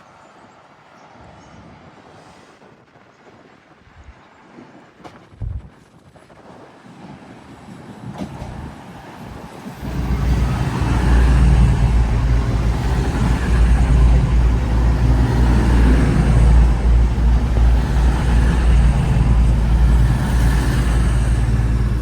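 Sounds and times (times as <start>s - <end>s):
train engine rumble: 7.3s - 22.0s.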